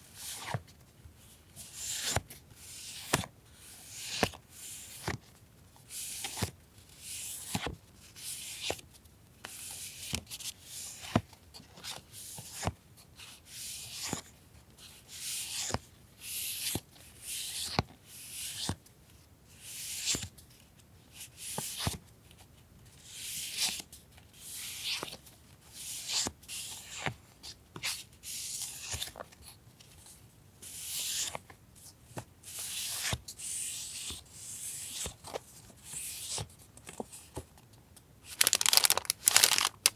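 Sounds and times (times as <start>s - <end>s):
paper rustling and sliding: 38.4s - 39.9s.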